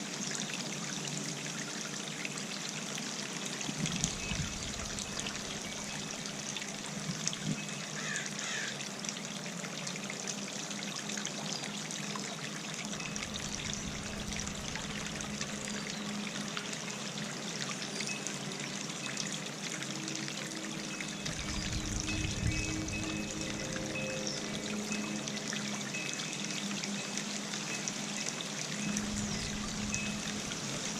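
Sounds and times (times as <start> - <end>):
fountain trickling and splashing: 0.0 - 30.9
wind rumbling on microphone: 3.7 - 5.5, 13.2 - 15.3, 21.2 - 23.7, 29.0 - 30.9.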